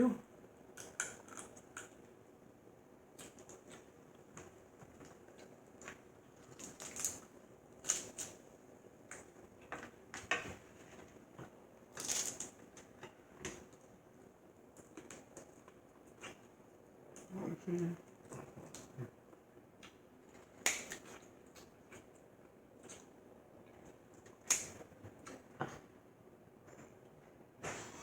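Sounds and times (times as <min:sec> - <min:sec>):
crab shell cracking: 0:00.8 - 0:02.0, 0:06.4 - 0:08.4, 0:20.6 - 0:21.0, 0:24.4 - 0:24.8.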